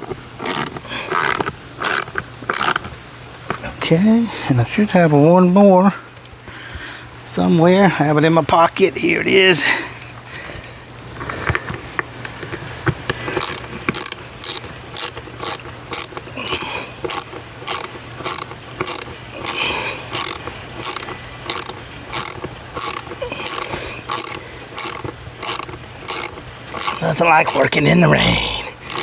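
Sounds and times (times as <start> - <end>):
socket ratchet clicking: 0.0 - 2.9, 13.4 - 27.8, 28.4 - 29.0.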